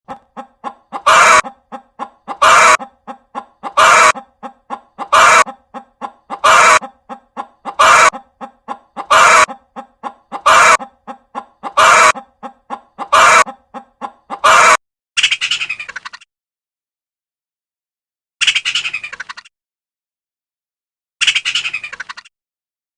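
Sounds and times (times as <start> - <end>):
chicken clucking: 0.1 - 14.8
chicken squawking: 0.1 - 16.0.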